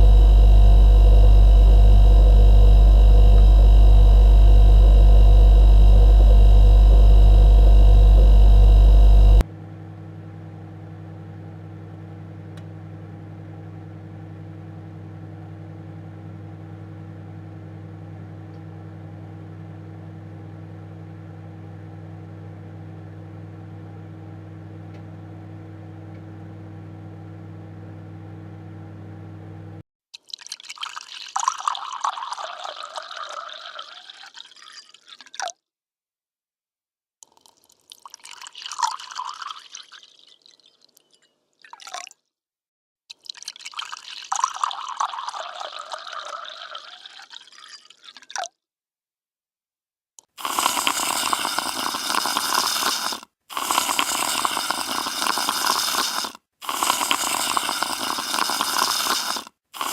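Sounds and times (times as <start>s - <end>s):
kitchen appliance deep hum: 0.0s - 29.8s.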